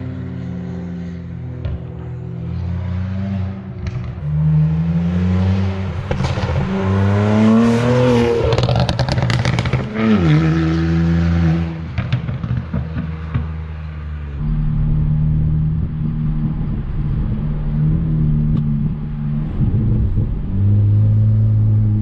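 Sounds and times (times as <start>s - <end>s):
car engine revving: 0.0s - 22.0s
exhaust popping and crackling: 8.4s - 10.0s.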